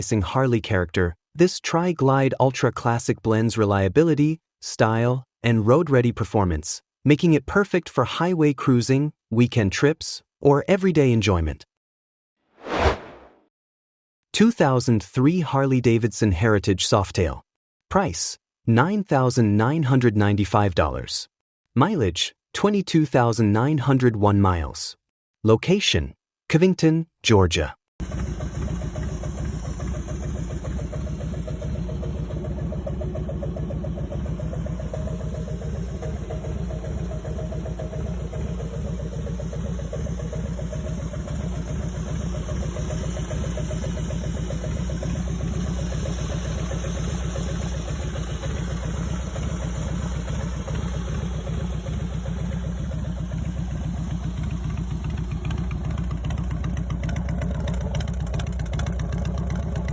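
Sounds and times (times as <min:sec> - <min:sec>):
motorcycle engine idling: 0:28.0 - 0:59.9.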